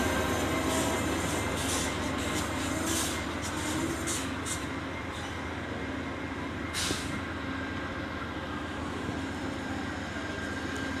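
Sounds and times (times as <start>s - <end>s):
train wheels rumbling on rails: 0.0s - 11.0s
hiss of air: 6.8s - 7.2s.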